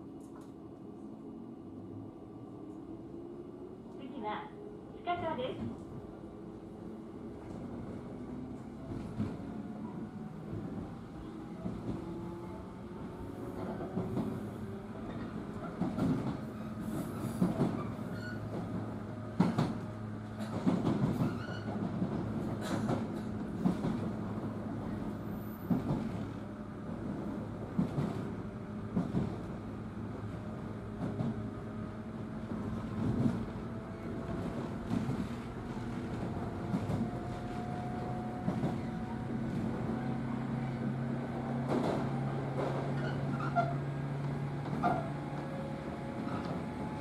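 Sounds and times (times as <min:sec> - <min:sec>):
train rumble: 0:00.2 - 0:47.0
rail-joint clicks: 0:19.4 - 0:24.1.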